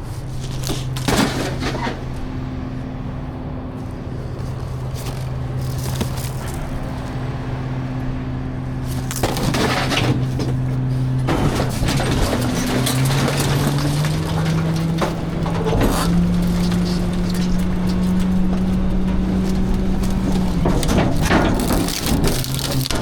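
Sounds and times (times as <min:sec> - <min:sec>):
diesel engine running: 0:00.0 - 0:23.0
trash rattling and breaking: 0:00.2 - 0:23.0.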